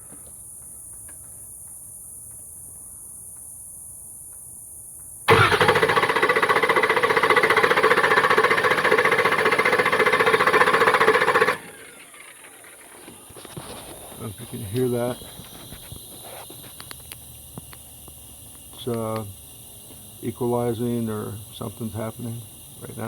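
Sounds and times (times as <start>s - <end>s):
engine starter cranking: 5.3s - 23.0s.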